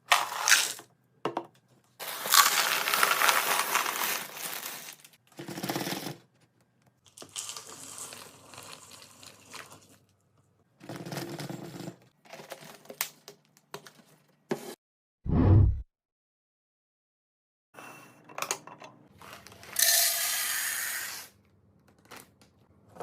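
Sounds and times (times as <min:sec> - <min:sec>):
packaging rustling and crinkling: 0:02.0 - 0:05.2.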